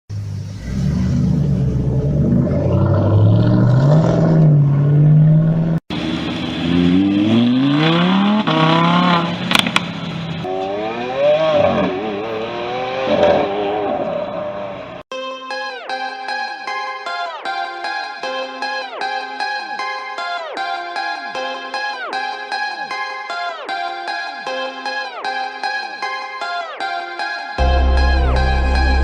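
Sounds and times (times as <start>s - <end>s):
engine revving: 0.1s - 15.0s, 27.6s - 29.0s
car engine running: 27.6s - 29.0s.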